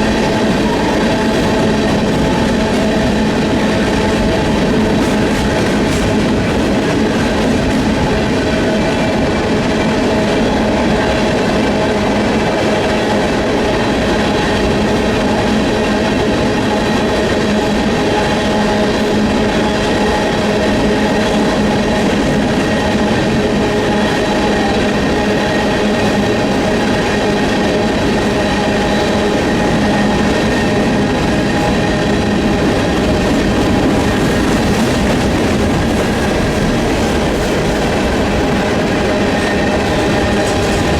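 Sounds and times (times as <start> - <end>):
freight train wheels clattering: 0.0 - 40.9.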